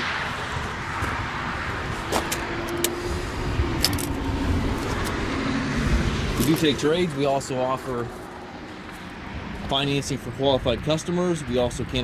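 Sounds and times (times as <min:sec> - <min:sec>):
sharp clicks: 0:02.2 - 0:03.0.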